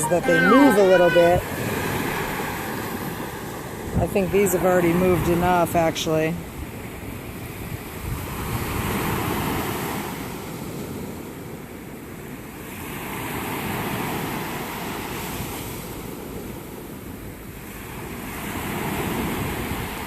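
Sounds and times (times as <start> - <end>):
wind rumbling on microphone: 2.9 - 9.8.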